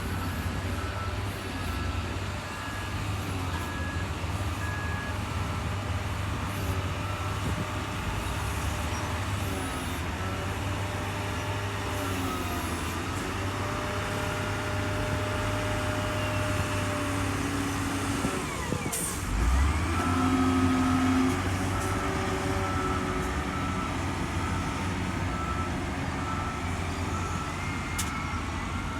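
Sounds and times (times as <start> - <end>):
reversing alarm beeping: 0.0 - 5.7, 18.2 - 28.9.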